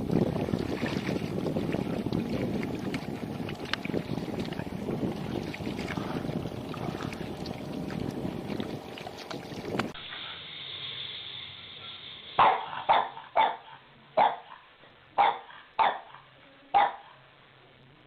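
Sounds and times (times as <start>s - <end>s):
rushing wind-like noise: 0.0s - 10.0s
dog barking: 12.4s - 17.2s.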